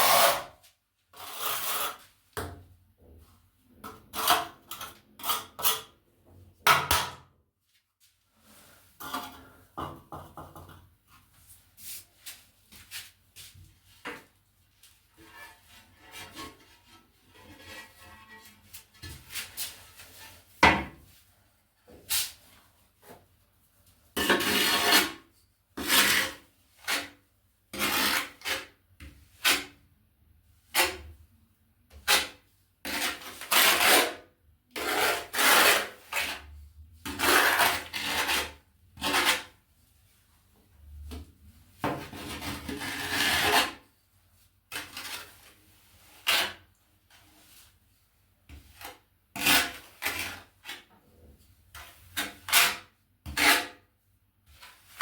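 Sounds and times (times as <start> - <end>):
steel trowel scraping adhesive: 0.0 - 0.5, 1.2 - 2.0.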